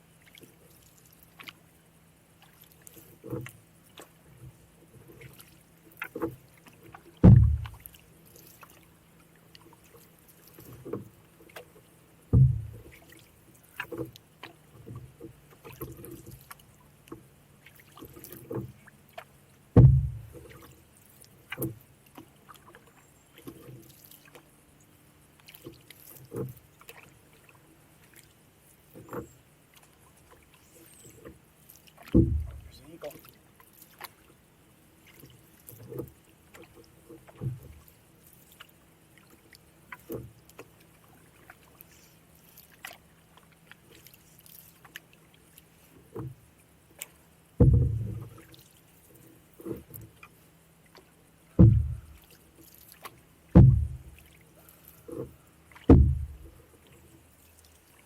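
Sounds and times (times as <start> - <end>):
paddle knocking against canoe hull: 6.0 - 7.9, 10.6 - 13.2, 13.8 - 20.7, 32.0 - 33.4, 35.1 - 37.8, 46.0 - 48.6, 50.9 - 52.4, 53.0 - 54.4, 55.0 - 56.6
heavy low thuds on hull: 7.2 - 7.8, 12.3 - 12.8, 19.7 - 20.5, 32.1 - 32.8, 47.6 - 48.3, 51.5 - 52.2, 53.5 - 54.2, 55.8 - 56.6.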